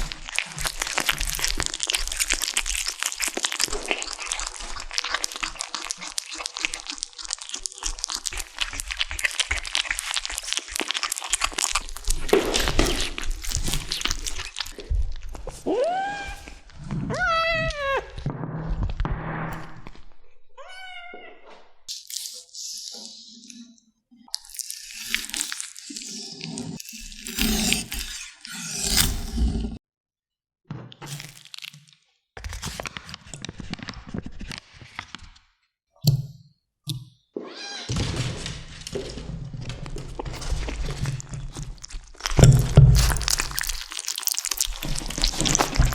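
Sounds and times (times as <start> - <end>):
kittens chewing and crunching: 0.0 - 17.0, 21.9 - 29.4, 31.2 - 34.3, 38.9 - 45.9.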